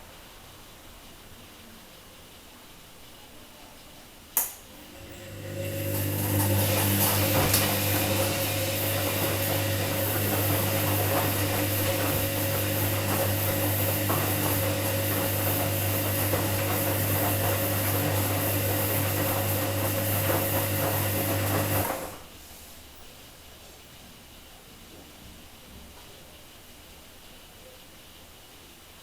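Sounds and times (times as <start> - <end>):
washing machine motor hum: 4.7 - 22.4.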